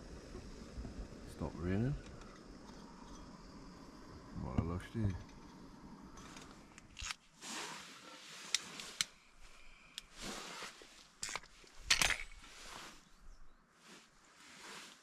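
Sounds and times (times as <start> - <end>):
rustling: 6.2 - 15.0
camp gear clicking and clacking: 9.9 - 12.6.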